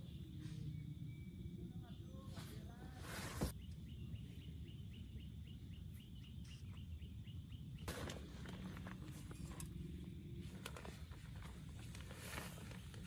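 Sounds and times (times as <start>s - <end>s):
small bird chirping: 0.0s - 8.0s
low steady rumble: 0.0s - 13.0s.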